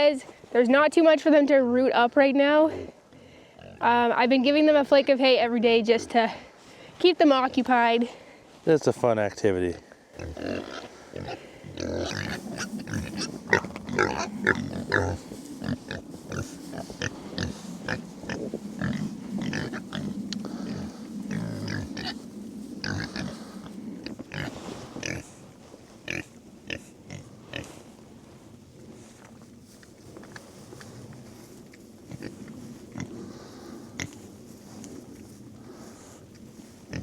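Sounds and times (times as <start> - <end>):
pigs grunting: 10.2 - 22.2, 22.8 - 25.3
hay rustling and crackling: 10.9 - 37.0.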